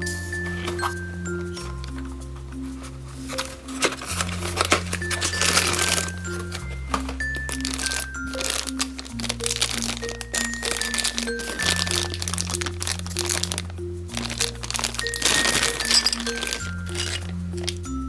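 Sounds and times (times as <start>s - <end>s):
background music: 0.0s - 18.0s
plastic packaging crinkling: 0.0s - 18.0s.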